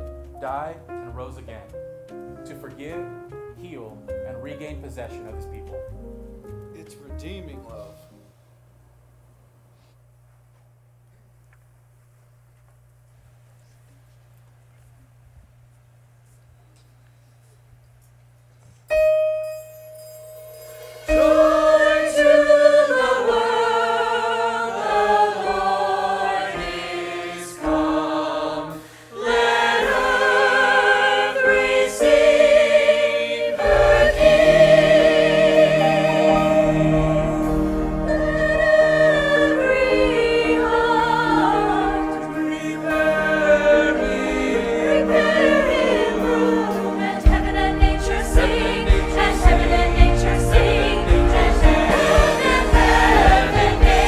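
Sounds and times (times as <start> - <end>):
musical accompaniment with bass: 0.0 - 8.2, 33.6 - 54.0
choir singing: 20.8 - 54.0.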